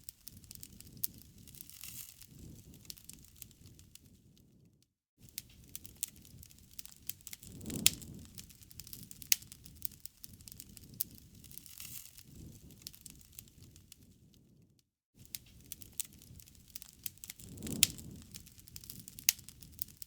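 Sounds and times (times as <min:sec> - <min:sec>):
wood fire crackling: 0:00.0 - 0:04.7, 0:05.3 - 0:14.6, 0:15.2 - 0:20.0
low rumble of flames: 0:00.0 - 0:20.0.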